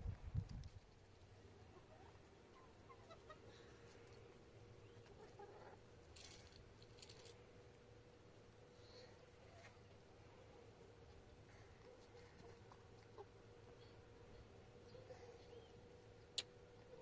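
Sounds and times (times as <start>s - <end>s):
faint chirping calls: 1.6s - 5.8s, 8.7s - 17.0s.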